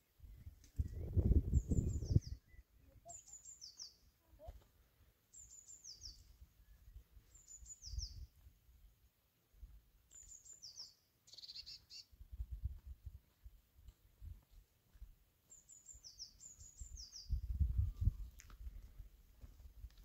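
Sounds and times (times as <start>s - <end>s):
wild birds chirping: 0.0s - 4.2s, 4.8s - 8.3s, 10.1s - 12.2s, 15.5s - 17.4s
bird trill: 1.6s - 4.0s, 10.2s - 12.1s
footsteps on stony ground: 3.6s - 5.2s, 9.6s - 11.0s, 11.6s - 16.2s, 17.0s - 20.0s.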